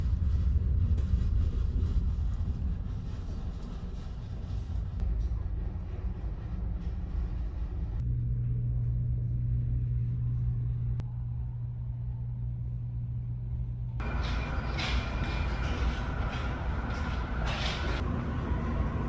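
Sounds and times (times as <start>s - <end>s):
ship engines rumbling: 14.0s - 19.0s.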